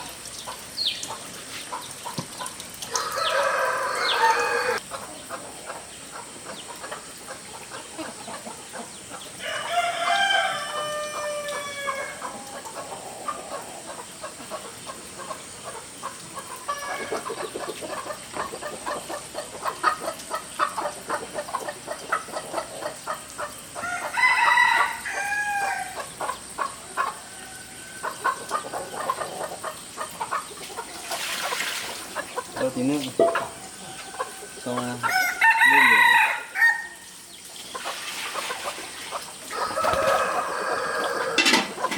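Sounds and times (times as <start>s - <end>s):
rooster crowing: 2.9s - 4.8s, 9.4s - 12.5s, 23.8s - 26.0s, 33.5s - 37.1s, 39.5s - 41.9s.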